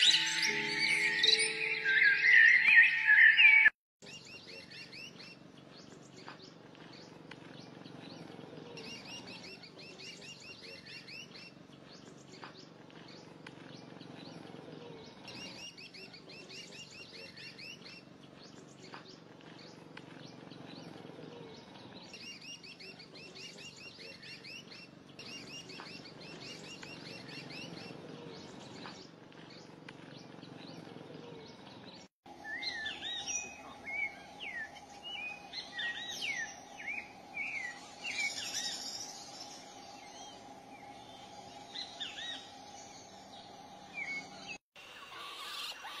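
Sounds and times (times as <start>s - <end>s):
small birds chirping: 0.0s - 46.0s
steady hum: 32.3s - 44.9s.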